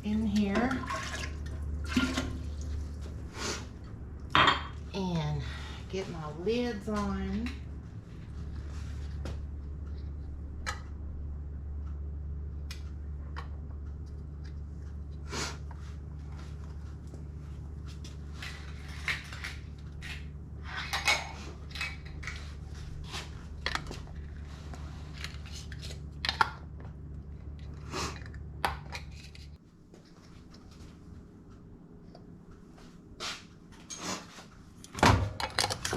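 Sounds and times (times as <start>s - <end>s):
low hum: 0.0s - 35.6s.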